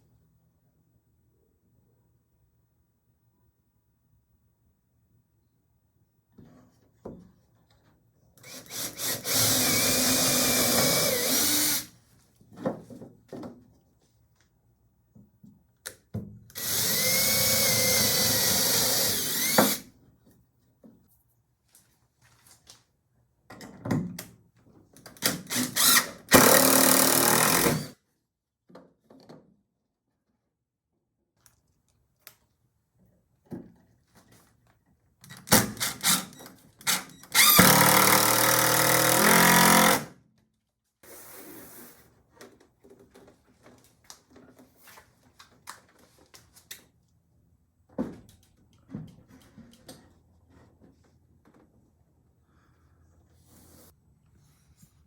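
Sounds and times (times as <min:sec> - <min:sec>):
power drill running: 0:08.4 - 0:11.9, 0:16.6 - 0:19.8, 0:25.5 - 0:27.9, 0:35.8 - 0:40.1.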